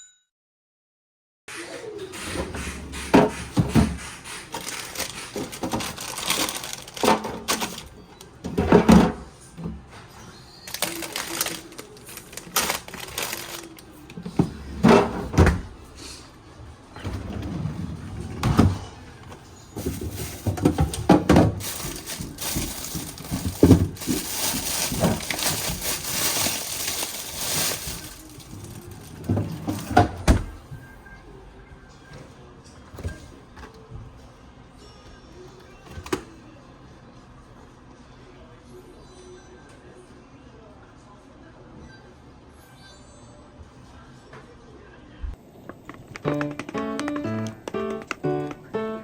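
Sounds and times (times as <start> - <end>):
objects knocking and clattering: 3.0 - 9.8, 19.8 - 30.5.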